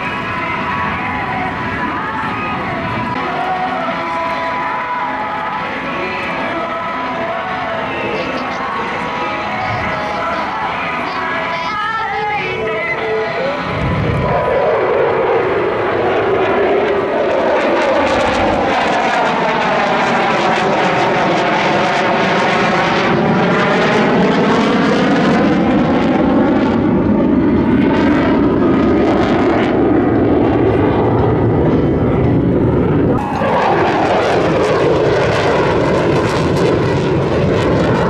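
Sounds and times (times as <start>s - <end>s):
fighter jet passing low: 0.0s - 38.0s.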